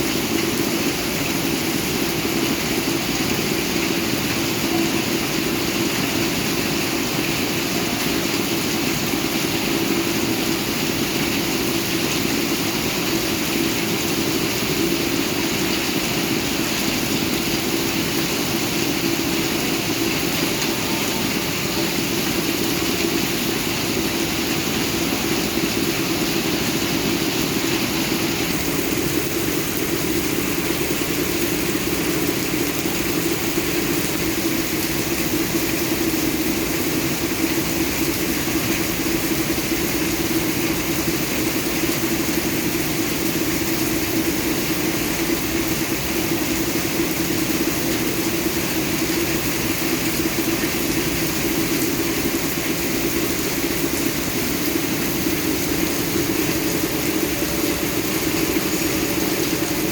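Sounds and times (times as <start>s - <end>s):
steady rainfall hiss: 0.0s - 59.9s.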